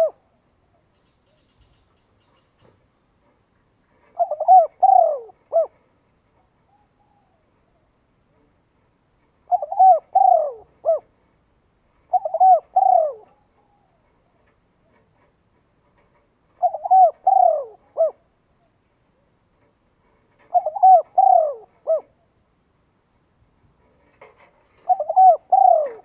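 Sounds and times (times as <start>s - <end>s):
bird calling: 0.0s - 2.8s, 4.1s - 5.8s, 6.6s - 8.0s, 9.4s - 11.1s, 12.1s - 15.0s, 16.6s - 18.8s, 20.4s - 22.4s, 24.8s - 26.0s.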